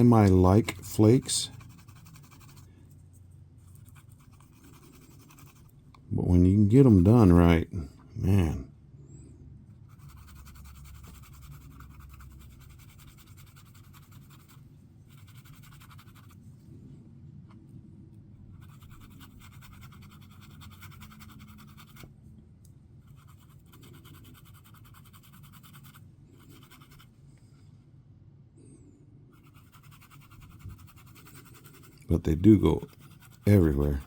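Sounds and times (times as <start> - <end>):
brush scratching: 0.0 - 5.8, 9.9 - 16.4, 18.6 - 22.1, 23.0 - 27.2, 29.3 - 34.0.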